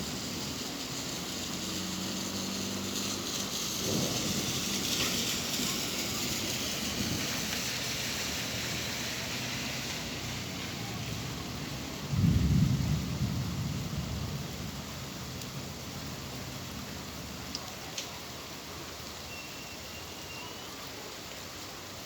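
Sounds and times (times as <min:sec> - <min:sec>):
steady rainfall: 0:00.0 - 0:22.0
low roll of thunder: 0:03.7 - 0:07.6, 0:10.8 - 0:17.4.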